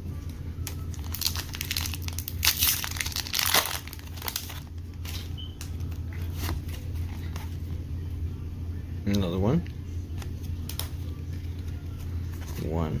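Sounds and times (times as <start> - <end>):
foil wrapper crinkling: 0.6 - 7.4.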